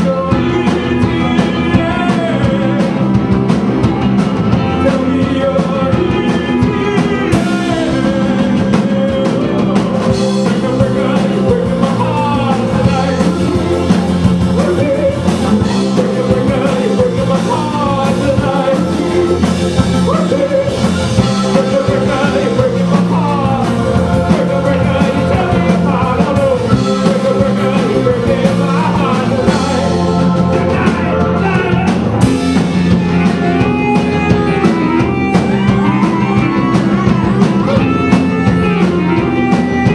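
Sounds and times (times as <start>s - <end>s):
indie rock song with vocals: 0.0s - 39.9s.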